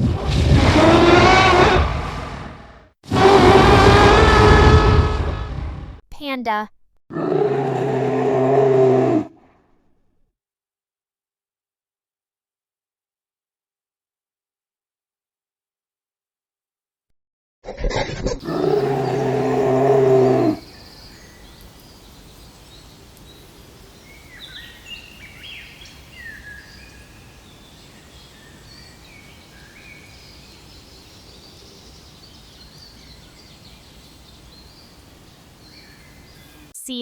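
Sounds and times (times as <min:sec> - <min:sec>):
steady outdoor background: 0:17.7 - 0:37.0
faint bird chirps: 0:18.7 - 0:36.7.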